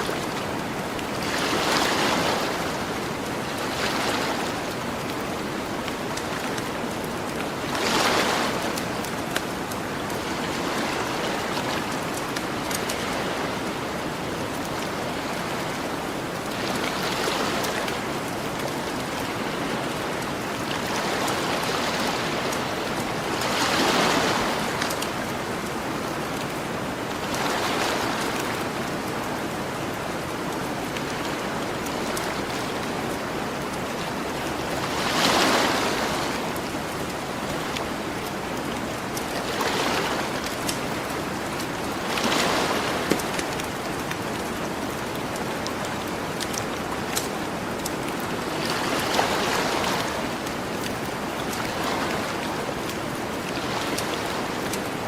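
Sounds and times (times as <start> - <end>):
ocean waves washing ashore: 0.0 - 55.0
campfire crackling: 43.1 - 48.5.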